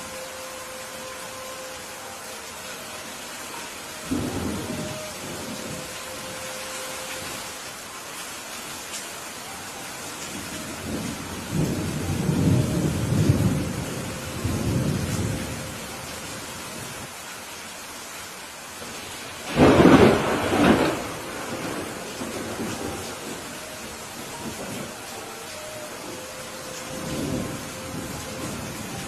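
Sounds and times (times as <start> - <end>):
steady rain falling: 0.0 - 29.0
rolling thunder: 19.4 - 23.6
loud thunderclap: 19.5 - 22.7.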